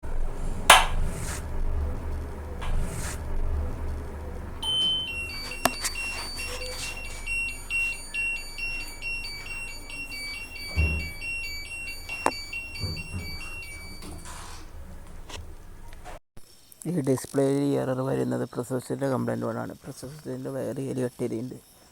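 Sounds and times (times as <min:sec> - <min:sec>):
buzzer beeping electronic tune: 0:04.6 - 0:14.4.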